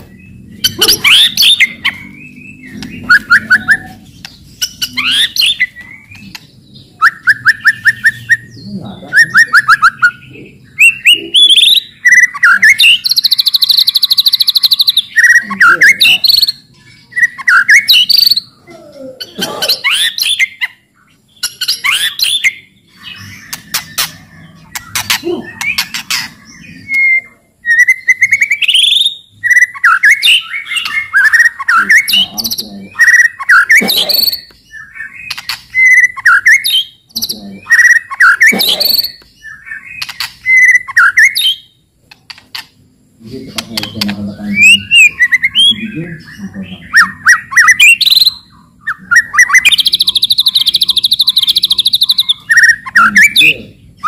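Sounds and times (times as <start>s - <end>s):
songbird singing varied whistles: 0.6s - 6.4s, 7.0s - 10.2s, 10.8s - 18.5s, 26.7s - 32.3s, 32.9s - 41.7s, 44.5s - 46.0s, 46.8s - 53.6s.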